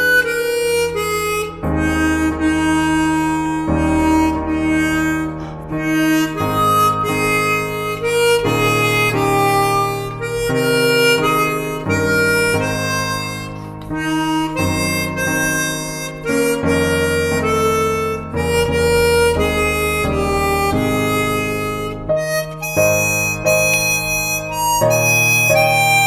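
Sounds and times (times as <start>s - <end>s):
harmonica playing slow melody: 0.0s - 26.0s.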